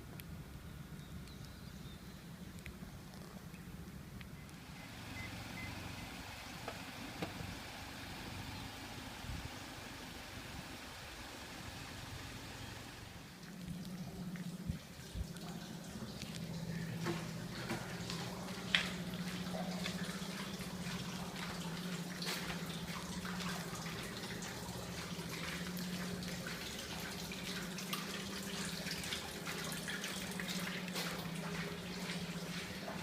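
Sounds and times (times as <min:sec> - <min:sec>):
steady low hum: 0:00.0 - 0:33.0
water trickling and dripping: 0:13.0 - 0:33.0.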